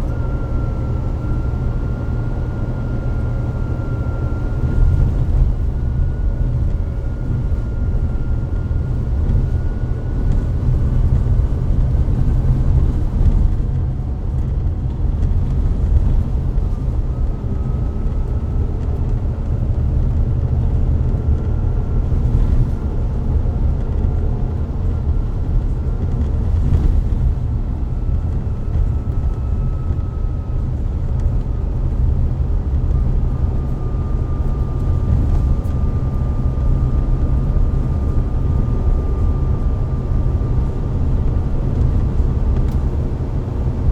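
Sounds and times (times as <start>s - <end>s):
faint thin whine: 0.0s - 14.4s
bus engine low rumble: 0.0s - 43.9s.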